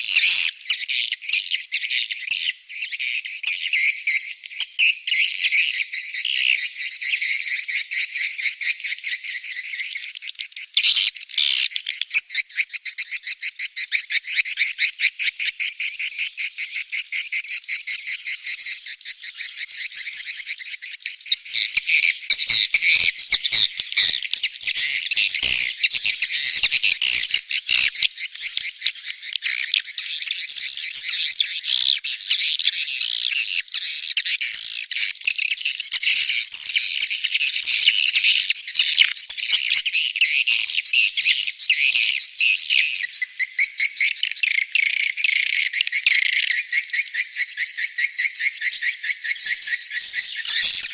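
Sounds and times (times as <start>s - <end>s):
swiftlets twittering: 49.3s - 50.9s.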